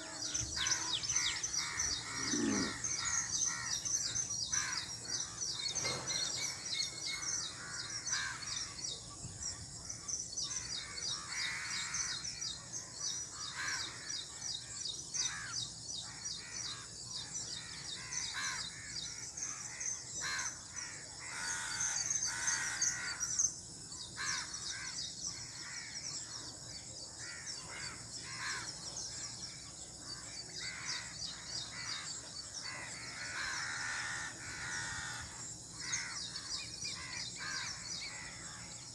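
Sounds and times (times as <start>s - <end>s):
crows cawing: 0.0s - 3.9s, 31.7s - 38.8s
small birds chirping: 0.0s - 38.9s.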